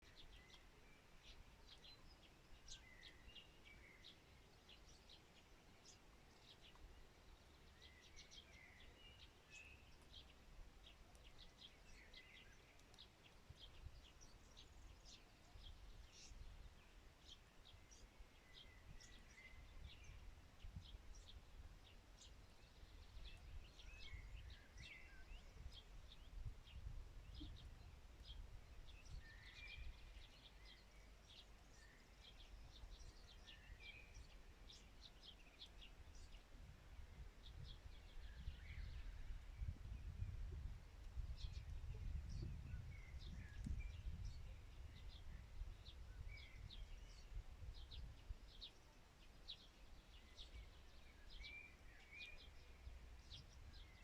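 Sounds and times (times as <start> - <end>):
soft birdsong phrase: 0.0 - 54.0.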